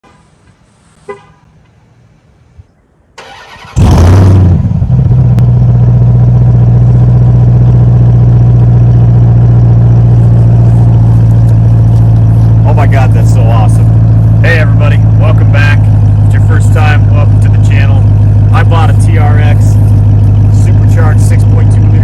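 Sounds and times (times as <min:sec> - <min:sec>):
car engine starting and idling: 0:03.1 - 0:22.0.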